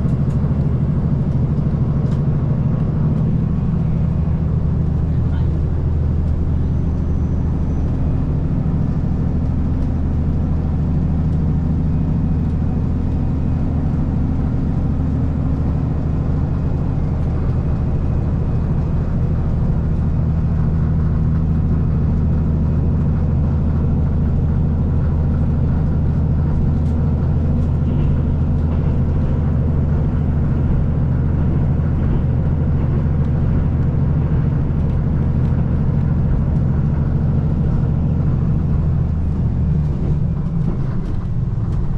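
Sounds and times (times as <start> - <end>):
diesel engine drone: 0.0 - 41.9
wheels rumbling on rail: 0.0 - 41.9.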